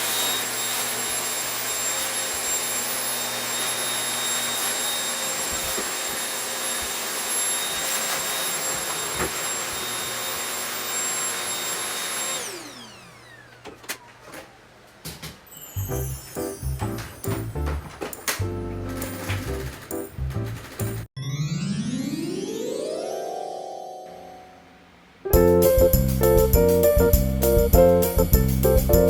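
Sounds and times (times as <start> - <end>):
motor winding down: 0.0 - 14.0
vacuum cleaner running: 0.0 - 14.7.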